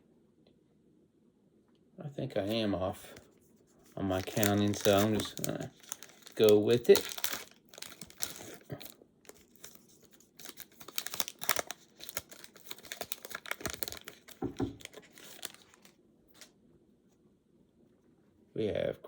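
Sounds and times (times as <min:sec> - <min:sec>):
cards rustling in hands: 0:02.4 - 0:16.5
plastic wrapper crinkling and tearing: 0:03.9 - 0:16.5.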